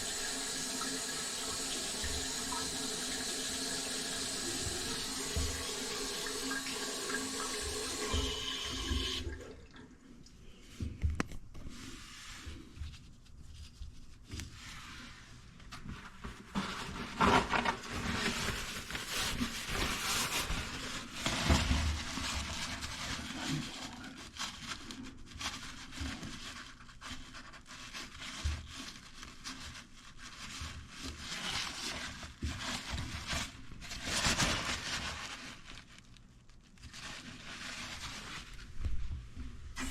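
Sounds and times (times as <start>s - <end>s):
water running from faucet: 0.0s - 9.4s
knocks and handling noises: 10.6s - 14.6s.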